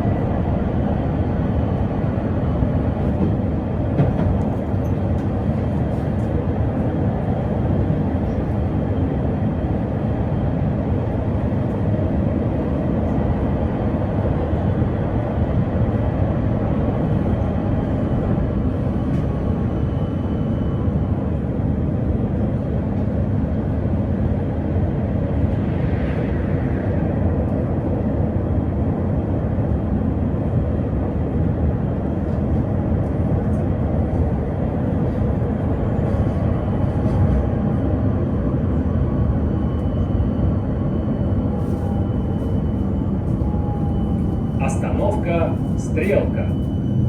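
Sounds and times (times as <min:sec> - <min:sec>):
tram wheels rumbling on rails: 0:00.0 - 0:47.0.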